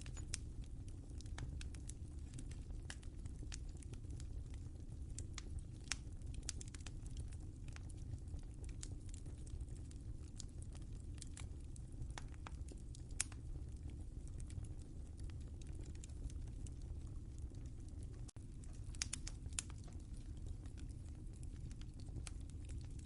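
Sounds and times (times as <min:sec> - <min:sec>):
fire pops and snaps: 0:00.0 - 0:23.0
wood fire crackling: 0:00.0 - 0:23.0.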